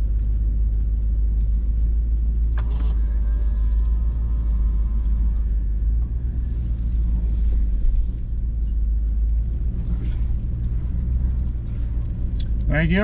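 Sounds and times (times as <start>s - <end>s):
engine low rumble from inside cab: 0.0s - 13.0s.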